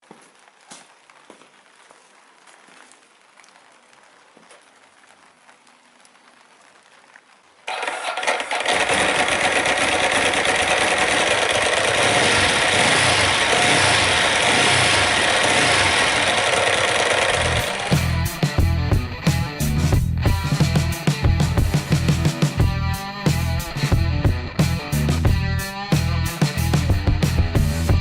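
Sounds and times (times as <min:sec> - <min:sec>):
motorcycle engine running: 0:07.7 - 0:19.3.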